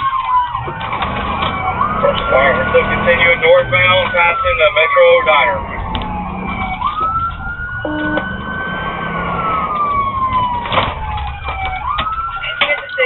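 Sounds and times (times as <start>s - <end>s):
police siren wailing: 0.0s - 13.0s
road and engine noise: 0.0s - 13.0s.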